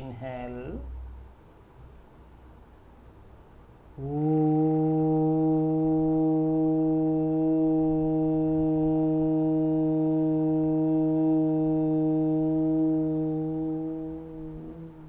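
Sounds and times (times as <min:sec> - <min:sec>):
person chanting a long vowel: 0:04.0 - 0:15.0.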